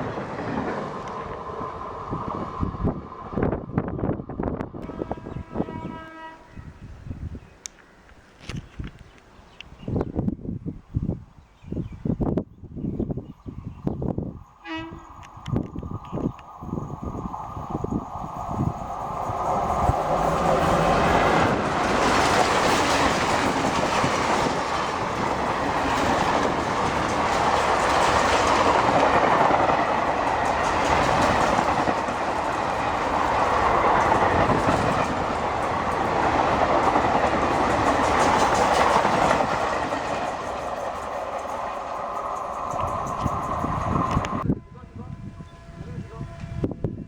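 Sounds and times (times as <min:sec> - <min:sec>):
train wheels rushing on rails: 0:14.8 - 0:44.5
clickety-clack over rail joints: 0:18.8 - 0:44.4.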